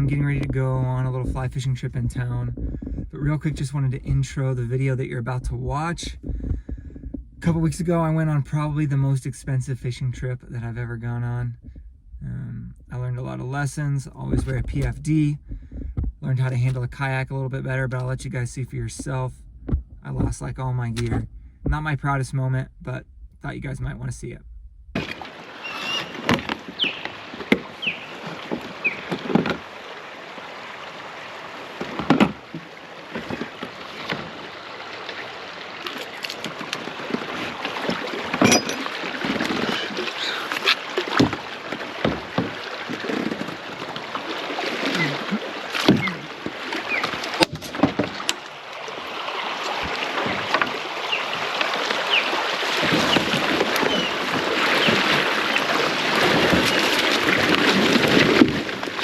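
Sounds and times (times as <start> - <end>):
water rushing around kayak hull: 0.0 - 11.8, 25.0 - 59.0
sharp knocks on kayak: 2.5 - 3.2, 26.0 - 29.7, 31.8 - 34.4, 41.0 - 43.6, 45.7 - 48.4, 52.7 - 58.7.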